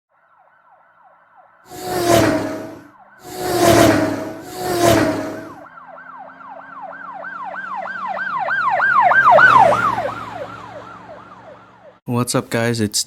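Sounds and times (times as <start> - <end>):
siren-like wail: 0.1 - 12.0
loud noisy bursts: 1.7 - 5.6
horn-like tone: 1.7 - 5.7.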